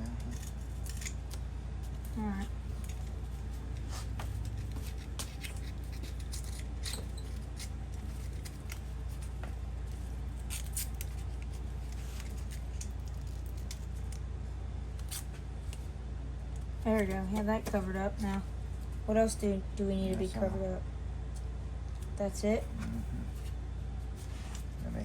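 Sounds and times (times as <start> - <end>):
low hum: 0.0 - 25.0
masking tape pulled and torn: 2.8 - 9.3, 10.3 - 14.2, 14.9 - 15.8.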